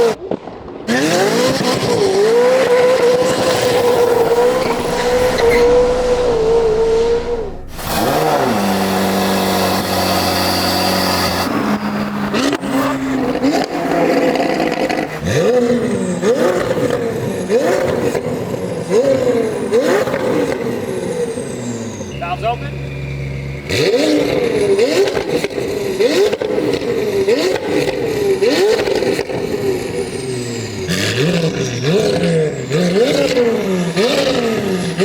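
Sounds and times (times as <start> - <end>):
sports car engine revving: 0.9 - 35.0.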